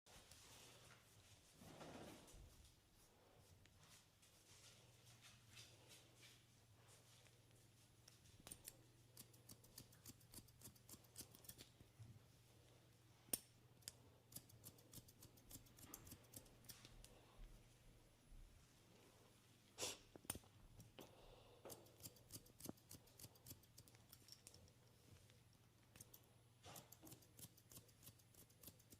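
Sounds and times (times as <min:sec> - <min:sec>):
scissors snipping hair: 0:08.0 - 0:11.8, 0:13.3 - 0:17.1, 0:21.6 - 0:24.8, 0:25.8 - 0:28.9.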